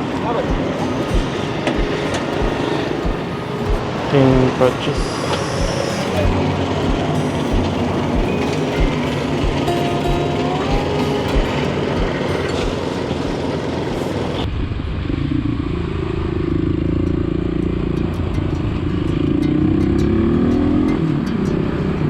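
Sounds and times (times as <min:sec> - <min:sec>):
rushing noise: 0:00.0 - 0:16.1.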